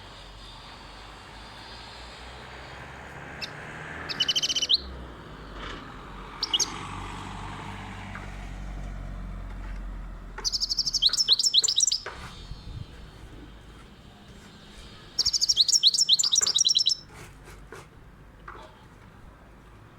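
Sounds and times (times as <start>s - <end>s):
bird twittering: 3.4s - 5.6s, 6.3s - 6.9s, 10.4s - 13.0s, 15.2s - 17.1s.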